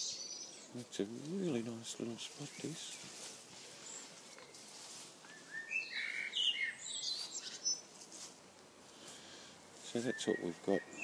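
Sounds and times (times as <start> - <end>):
songbird chirping and whistling: 0.0 - 0.7, 3.8 - 7.9, 10.0 - 11.0.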